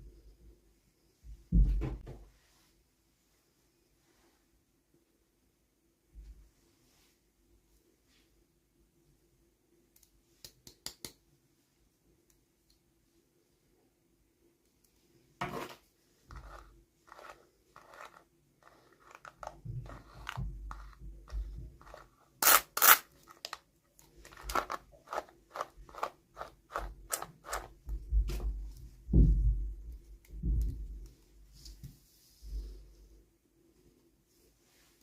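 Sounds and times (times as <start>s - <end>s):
plastic packaging crinkling: 22.4s - 26.1s
soft low thuds: 27.9s - 31.0s.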